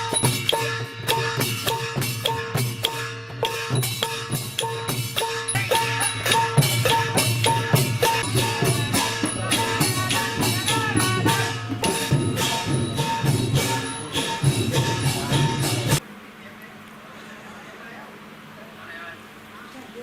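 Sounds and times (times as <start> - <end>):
drum ensemble playing: 0.0 - 16.0
small percussion shaken: 0.0 - 16.0.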